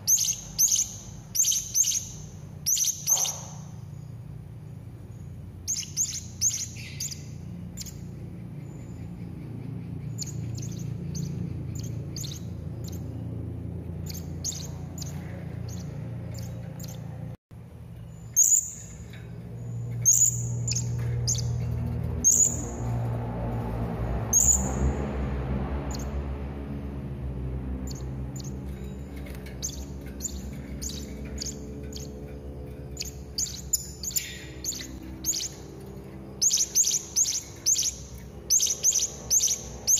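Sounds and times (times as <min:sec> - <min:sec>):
parrot chirping: 0:00.0 - 0:03.8, 0:05.6 - 0:13.2, 0:14.0 - 0:17.1, 0:32.9 - 0:35.7, 0:36.4 - 0:39.9
steady low hum: 0:00.0 - 0:39.9.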